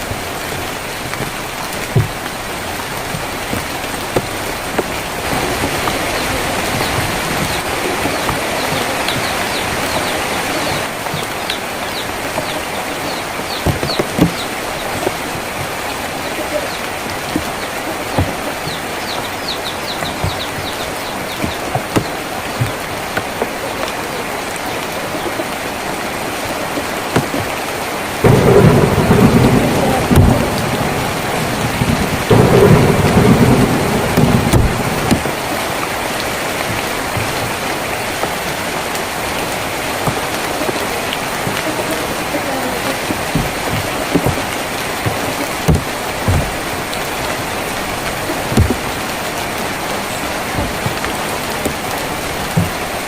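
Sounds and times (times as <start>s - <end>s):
drips knocking: 0.0s - 24.6s, 26.4s - 53.0s
rain drumming on a tin roof: 0.0s - 53.0s
thunder rumbling: 28.2s - 53.0s.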